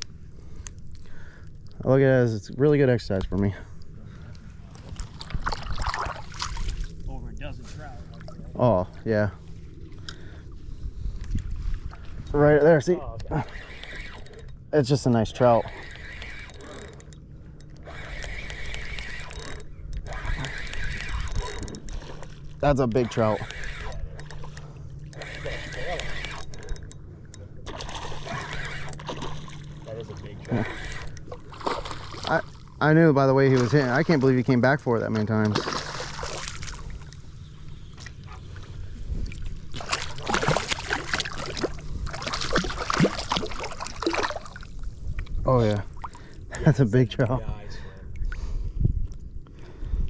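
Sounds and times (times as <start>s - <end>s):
steady low rumble: 0.0s - 13.6s, 14.2s - 50.0s
water splashing against kayak: 4.7s - 7.0s, 27.6s - 32.8s, 35.4s - 37.2s, 37.9s - 45.2s
fish thrashing at the surface: 4.9s - 7.0s, 27.6s - 32.8s, 35.4s - 37.1s, 39.3s - 44.9s
fishing reel clicking buzz: 13.2s - 32.8s, 35.6s - 38.0s.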